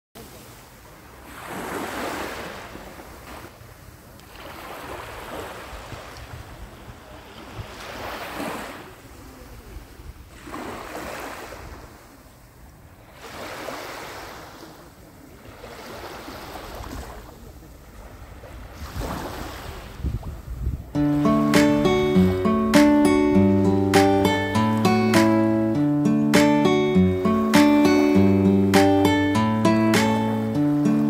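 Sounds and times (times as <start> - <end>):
waves washing onto shore: 0.2 - 23.3
wind rumbling on microphone: 5.7 - 7.8, 18.2 - 21.0.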